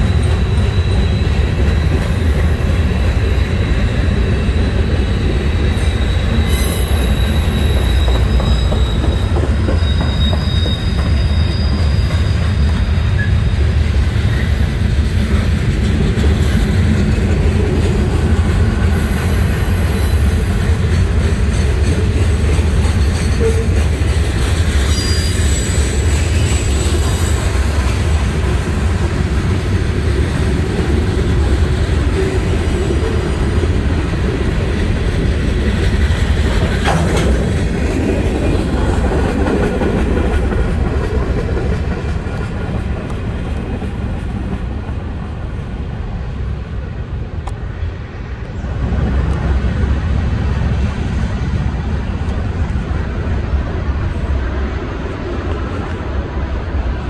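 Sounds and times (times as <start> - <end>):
high wheel squeals: 0.0 - 14.8, 18.5 - 21.4, 24.7 - 28.0
freight cars rumbling on rails: 0.0 - 57.0.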